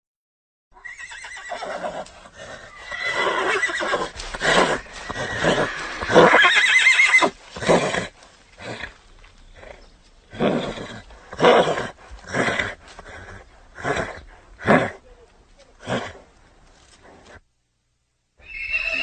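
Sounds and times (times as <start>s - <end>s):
horse whinnying: 0.8s - 9.0s, 9.6s - 15.0s, 18.4s - 19.0s.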